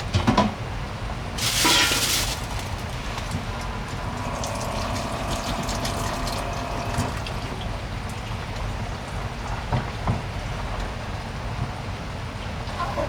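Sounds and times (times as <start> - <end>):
heavy rain pattering: 1.3 - 9.3.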